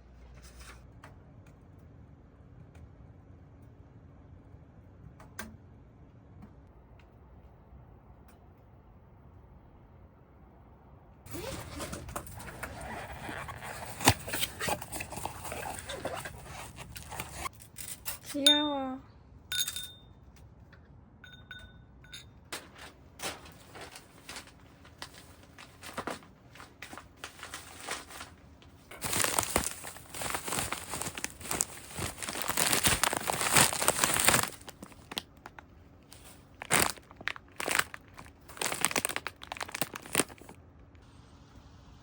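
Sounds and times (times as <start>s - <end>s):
crinkling and crumpling: 11.3s - 17.7s, 22.5s - 40.6s.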